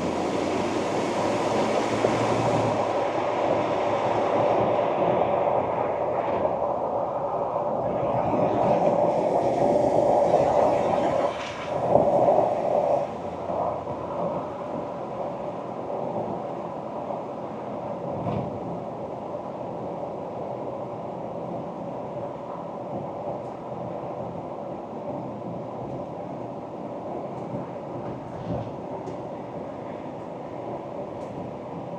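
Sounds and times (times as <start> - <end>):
pickup engine and tyre rumble: 0.0 - 6.0.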